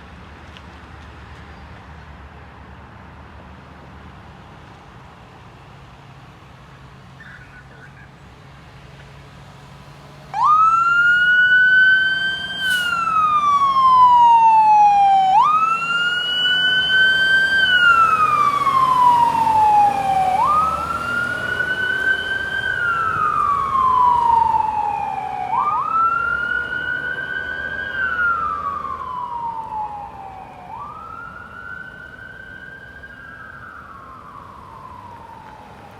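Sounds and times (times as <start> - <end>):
fire engine siren wailing: 10.2 - 35.9.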